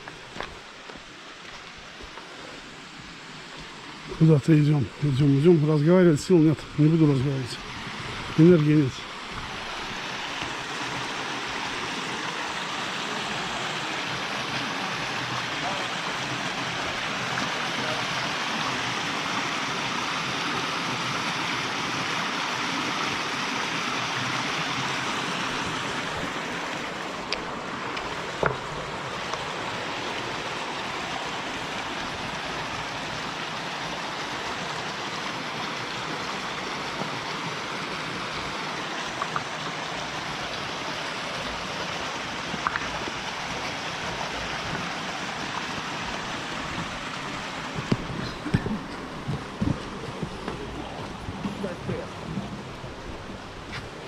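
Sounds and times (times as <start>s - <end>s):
mountain stream rushing: 0.0s - 54.0s.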